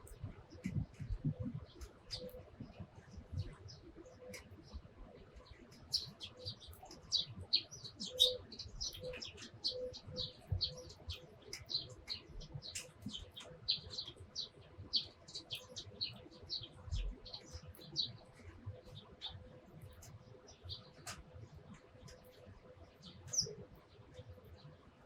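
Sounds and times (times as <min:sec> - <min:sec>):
sparrows chirping: 0:00.0 - 0:25.0.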